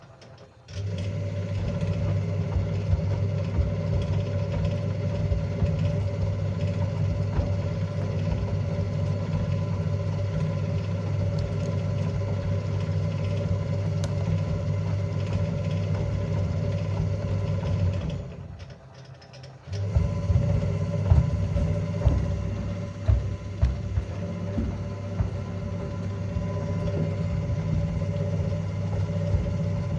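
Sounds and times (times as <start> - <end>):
washing machine motor hum: 0.0 - 29.9
shoes knocking in drum: 2.5 - 9.9, 20.0 - 29.9.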